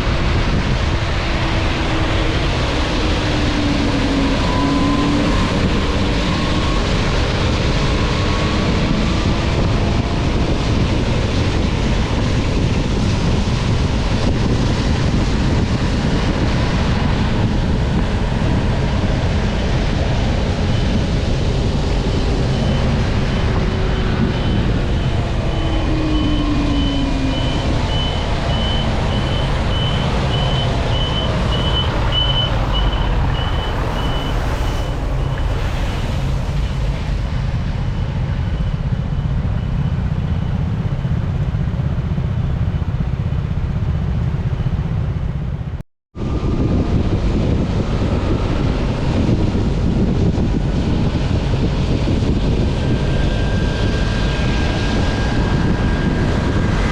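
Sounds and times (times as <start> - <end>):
road traffic noise: 0.0 - 56.9
wind buffeting microphone: 0.0 - 56.9
passing vehicle engine: 18.0 - 40.3.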